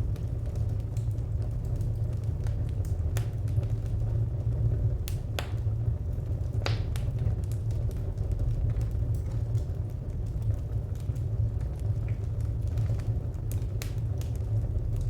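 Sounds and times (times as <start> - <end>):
fire pops and snaps: 0.0 - 15.0
wood fire crackling: 0.0 - 15.0.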